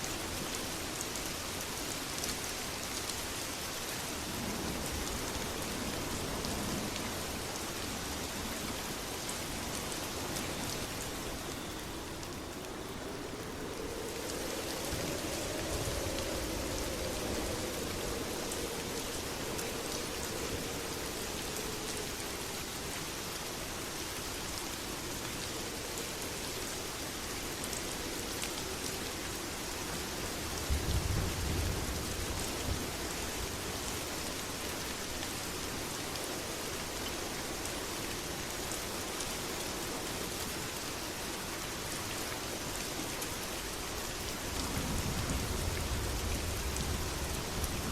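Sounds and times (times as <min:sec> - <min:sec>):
heavy rain pouring: 0:00.0 - 0:47.9
thunder rumble: 0:13.2 - 0:22.6, 0:44.5 - 0:47.9.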